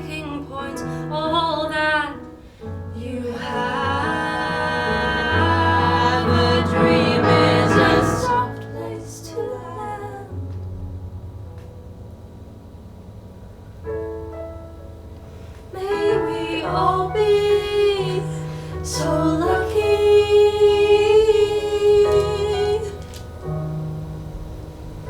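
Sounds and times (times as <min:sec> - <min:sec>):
piano chords: 0:00.0 - 0:25.0
woman singing with vibrato: 0:03.0 - 0:10.4, 0:15.8 - 0:23.1.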